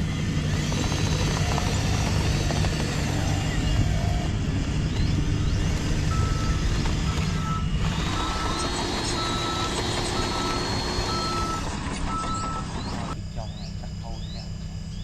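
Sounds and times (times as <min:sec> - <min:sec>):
low engine rumble: 0:00.0 - 0:15.0
reversing beeper short beeps: 0:06.1 - 0:14.4.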